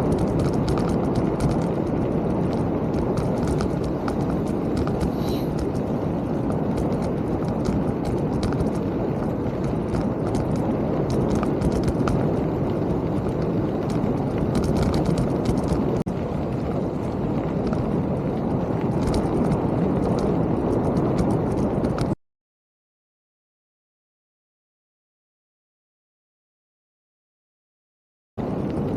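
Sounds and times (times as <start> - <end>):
bike rattling and knocking: 0.0 - 22.2
bike tyres rumbling on trail: 0.0 - 22.2, 28.4 - 28.9.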